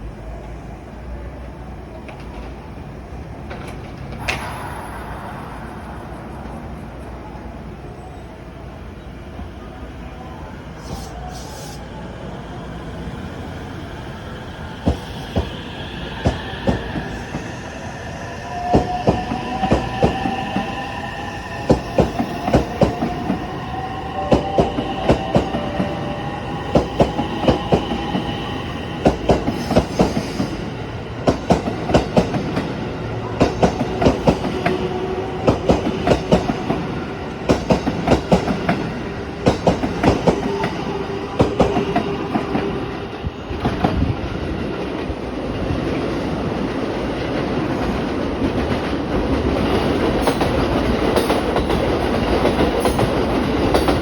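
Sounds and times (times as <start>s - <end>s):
train wheels clacking over rail joints: 47.8s - 54.0s.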